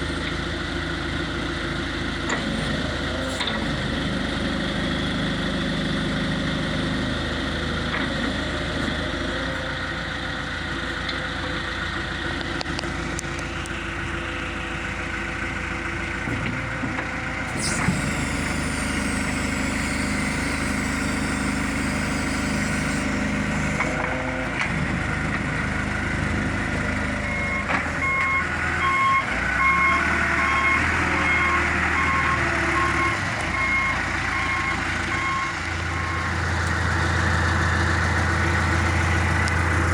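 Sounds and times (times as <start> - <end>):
diesel engine running: 0.0 - 39.9
reversing alarm beeping: 17.6 - 23.9, 27.2 - 37.5.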